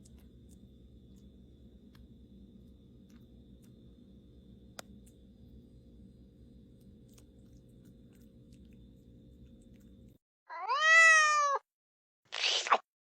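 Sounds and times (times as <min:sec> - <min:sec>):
faint low hum: 0:00.0 - 0:10.2
cat meowing: 0:10.5 - 0:11.6.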